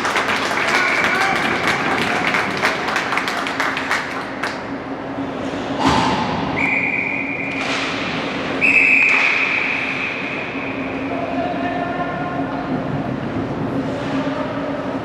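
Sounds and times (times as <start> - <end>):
crowd noise: 0.0 - 5.3
steady hum: 0.0 - 15.0
referee's whistle blasts: 6.6 - 7.6, 8.6 - 10.5.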